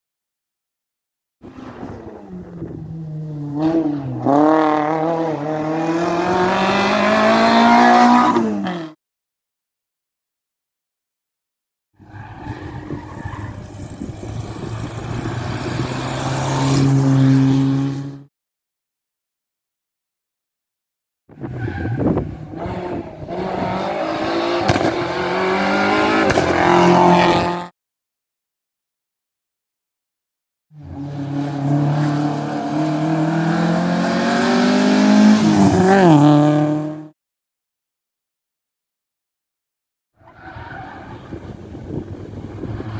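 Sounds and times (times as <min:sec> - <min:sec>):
rally car engine at high revs: 0:01.4 - 0:09.0, 0:12.2 - 0:18.3, 0:21.3 - 0:27.7, 0:30.8 - 0:37.1.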